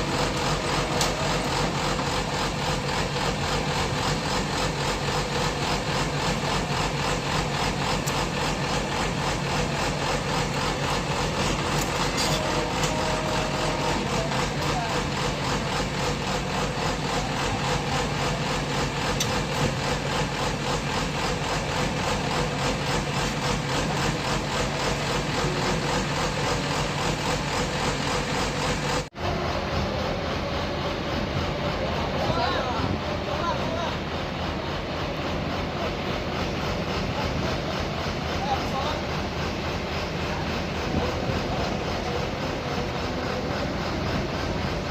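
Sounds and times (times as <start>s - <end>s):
drilling rig engine running: 0.0s - 44.9s.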